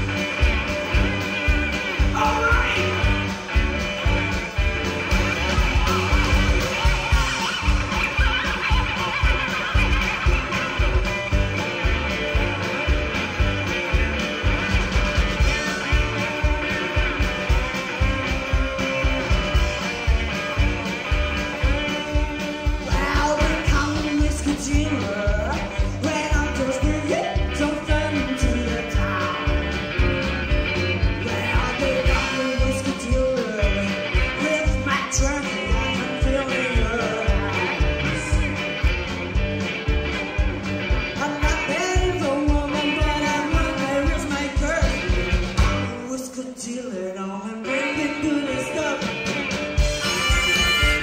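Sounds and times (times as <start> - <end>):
person singing: 0.0 - 4.3, 21.6 - 29.8, 31.0 - 38.8, 41.1 - 51.0
rock music with drums and guitar: 0.0 - 51.0.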